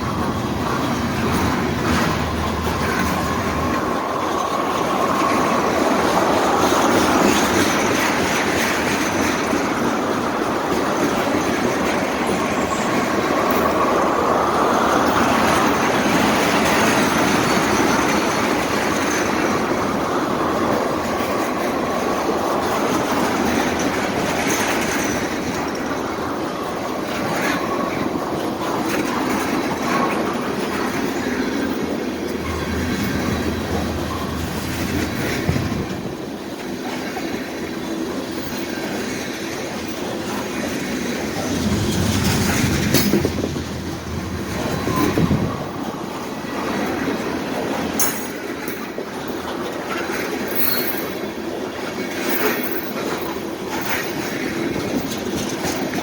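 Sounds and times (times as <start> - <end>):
train wheels clattering over rail joints: 0.0 - 56.0.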